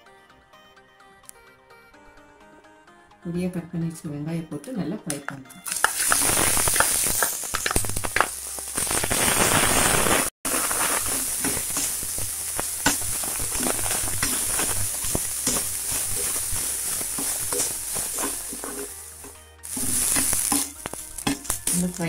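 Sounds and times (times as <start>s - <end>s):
onions sizzling in hot oil: 5.6s - 22.0s
metal spoon stirring in pan: 10.5s - 22.0s.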